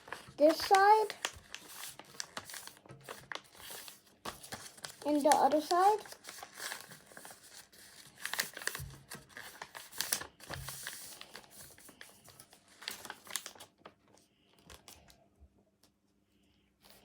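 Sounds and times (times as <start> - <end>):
paper being folded and creased: 0.0 - 15.0.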